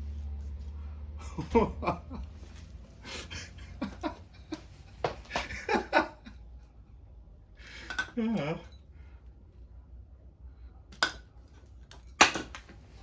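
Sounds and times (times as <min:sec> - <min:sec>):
person laughing: 0:01.2 - 0:02.3, 0:05.3 - 0:06.4, 0:08.0 - 0:08.7.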